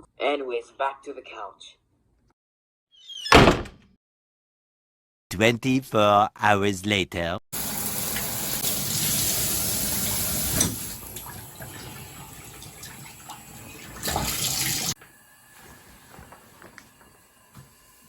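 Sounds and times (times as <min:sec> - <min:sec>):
water running: 0:07.6 - 0:18.0.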